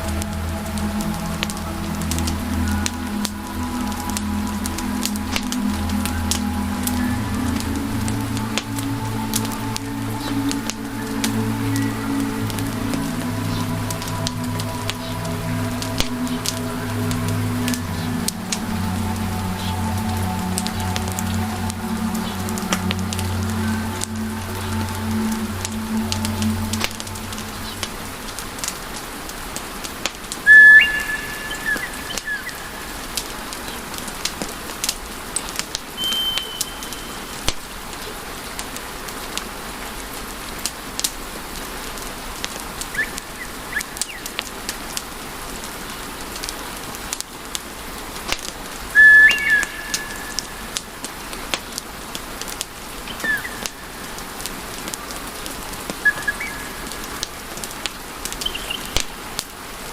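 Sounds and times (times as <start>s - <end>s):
wood fire crackling: 0.0s - 59.9s
short high whistle: 36.0s - 37.2s, 49.0s - 49.6s.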